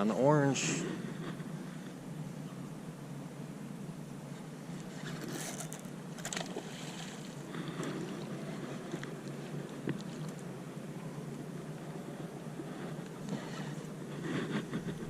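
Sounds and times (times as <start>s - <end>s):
wind around a boat: 0.0s - 15.0s.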